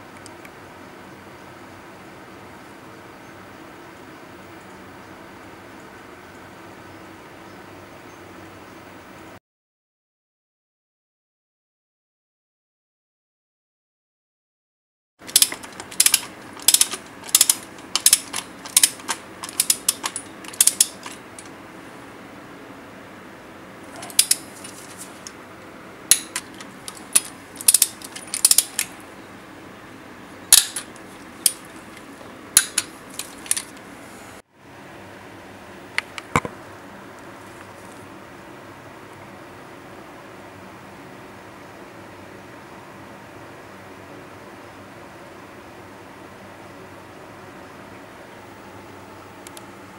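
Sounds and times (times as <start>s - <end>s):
ratchet wrench clicking: 15.3s - 21.5s, 24.0s - 24.8s, 26.1s - 28.9s, 30.5s - 31.7s, 32.6s - 33.7s.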